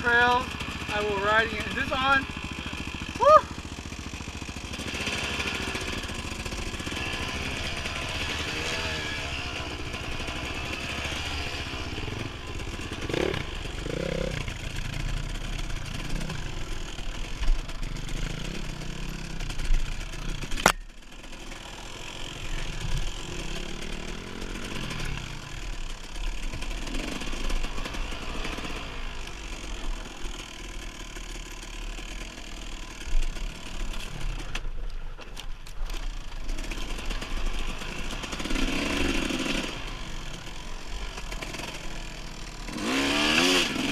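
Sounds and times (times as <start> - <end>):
dirt bike engine revving: 0.0 - 34.8, 35.8 - 43.9
sharp click: 20.5 - 20.9.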